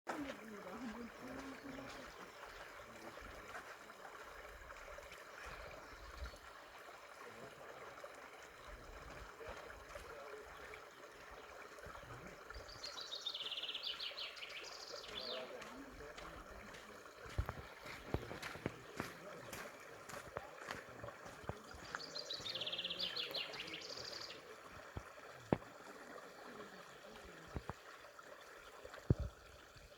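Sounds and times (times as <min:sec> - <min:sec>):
faint running water: 0:00.1 - 0:29.9
songbird trilling: 0:12.6 - 0:15.5, 0:21.8 - 0:24.4.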